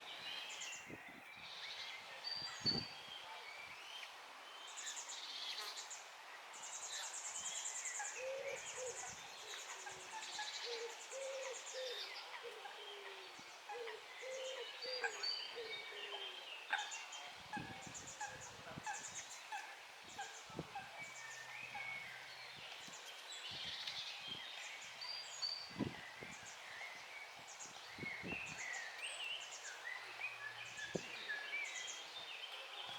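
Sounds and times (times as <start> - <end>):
low repeated cooing: 10.7 - 16.3.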